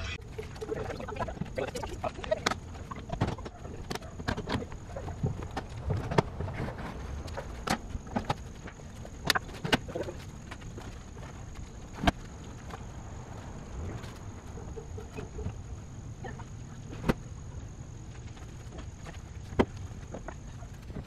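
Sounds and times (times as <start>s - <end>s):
camp gear clicking and knocking: 2.4s - 12.8s.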